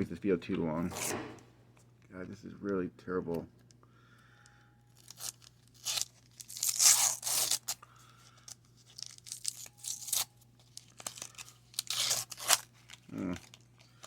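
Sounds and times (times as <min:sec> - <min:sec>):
wax-paper wrapper tearing and crinkling: 0:04.9 - 0:14.0.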